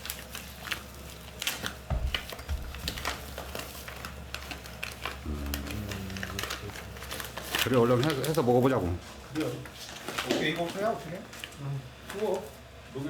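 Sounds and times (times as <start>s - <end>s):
plastic packaging crinkling: 0.0s - 5.1s.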